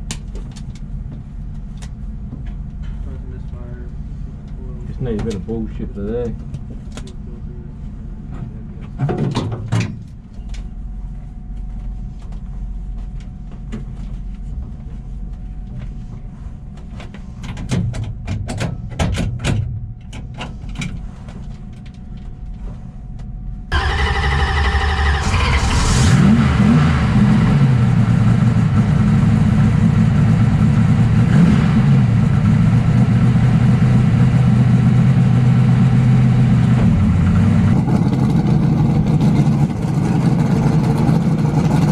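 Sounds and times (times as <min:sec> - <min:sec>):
low rumble: 0:21.0 - 0:41.9
car engine starting and idling: 0:23.7 - 0:41.9.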